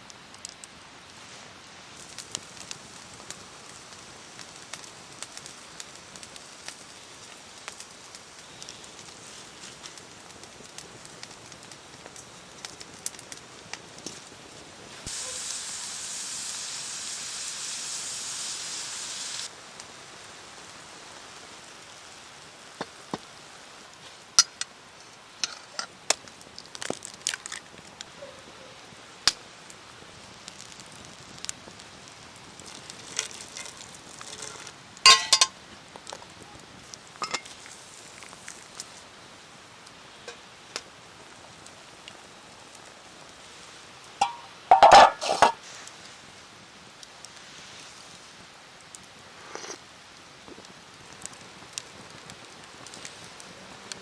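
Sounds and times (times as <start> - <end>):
food sizzling in a pot: 0.6 - 28.2, 28.9 - 54.0
pot clattering and ringing: 35.1 - 35.5, 44.2 - 45.6.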